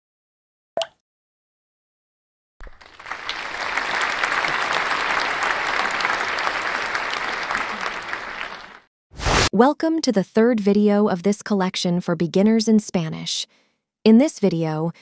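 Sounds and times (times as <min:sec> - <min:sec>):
crowd applauding: 0:02.6 - 0:08.9.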